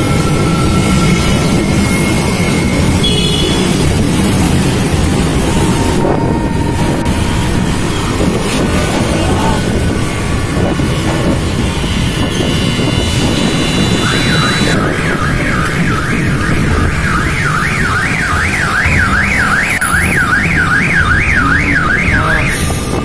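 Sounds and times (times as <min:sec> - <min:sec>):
traffic rumble: 0:00.0 - 0:23.0
wind: 0:00.0 - 0:23.0
electronic alarm siren warbling: 0:13.1 - 0:22.9.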